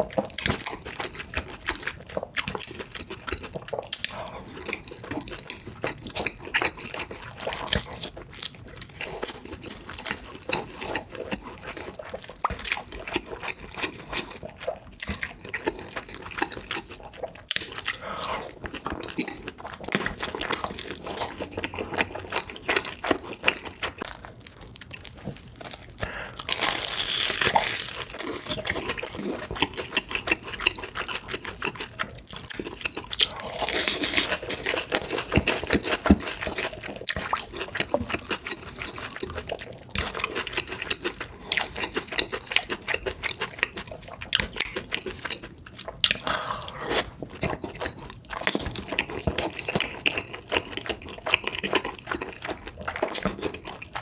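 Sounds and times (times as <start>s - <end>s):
wet chewing and crunching: 0.0s - 54.0s
slurping: 46.0s - 47.4s.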